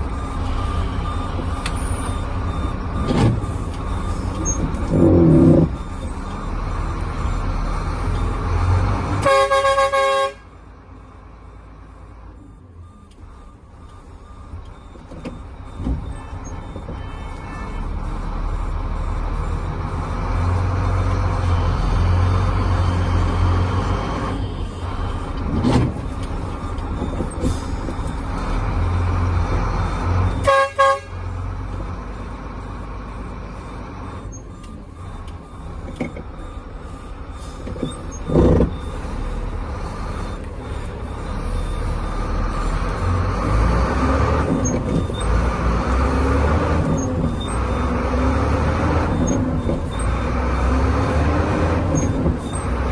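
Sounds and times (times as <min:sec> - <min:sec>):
diesel truck engine running: 0:00.0 - 0:52.9
truck horn toots: 0:09.0 - 0:10.6, 0:16.1 - 0:18.1, 0:30.2 - 0:31.4.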